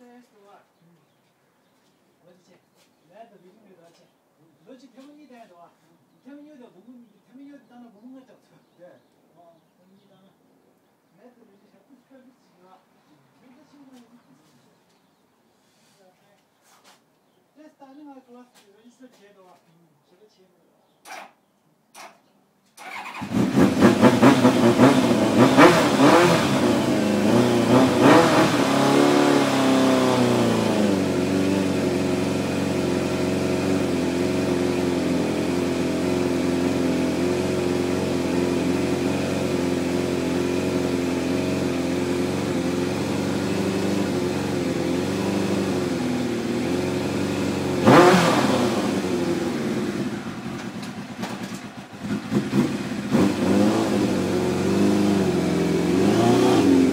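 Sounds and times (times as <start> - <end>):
motorcycle engine revving and idling: 22.8 - 56.9.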